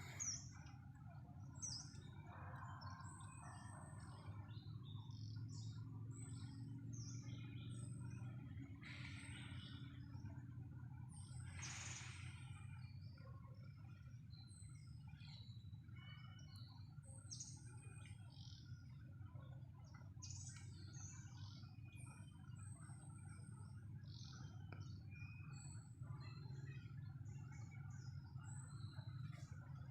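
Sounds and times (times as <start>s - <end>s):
birds chirping and whistling: 0.0s - 0.8s
faint low rumble: 0.0s - 29.9s.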